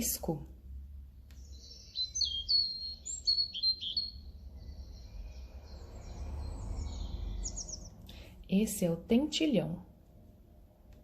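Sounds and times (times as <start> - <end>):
low background rumble: 0.0 - 11.0
robin singing: 1.3 - 9.8.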